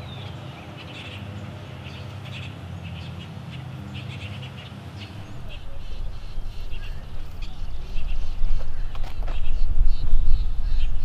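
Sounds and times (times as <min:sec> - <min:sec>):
small birds chirping: 0:00.0 - 0:11.0
low steady rumble: 0:03.9 - 0:11.0.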